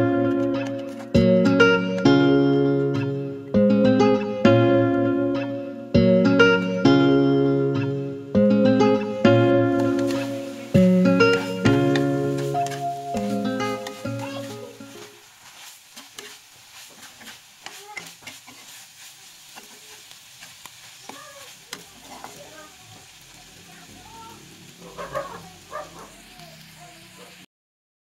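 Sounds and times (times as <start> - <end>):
food sizzling in a wok: 0.0 - 27.5
metal spoon stirring and scraping: 9.8 - 23.2.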